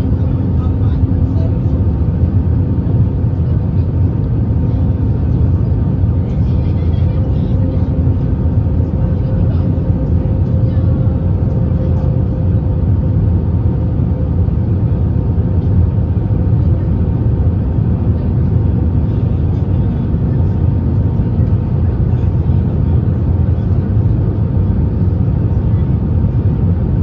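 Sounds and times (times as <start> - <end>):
airplane cabin rumble: 0.0 - 27.0.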